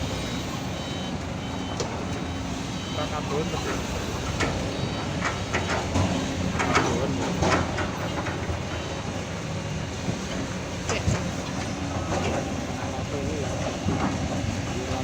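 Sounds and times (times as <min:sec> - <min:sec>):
diesel excavator engine running: 0:00.0 - 0:15.0
metallic clanks and knocks: 0:04.3 - 0:08.9.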